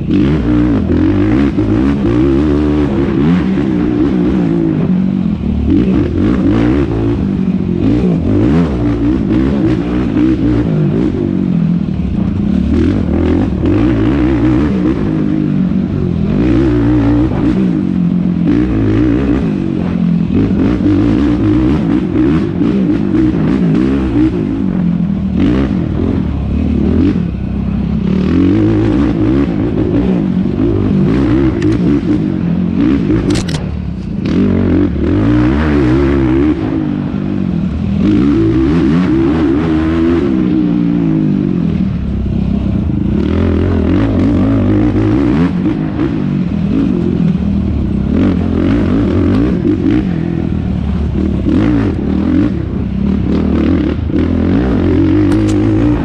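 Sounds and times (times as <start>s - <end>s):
quad engine revving hard: 51.0s - 56.0s.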